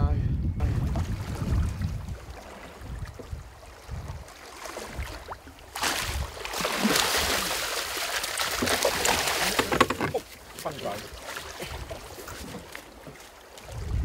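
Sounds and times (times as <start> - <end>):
fish splashing in water: 4.3 - 10.3.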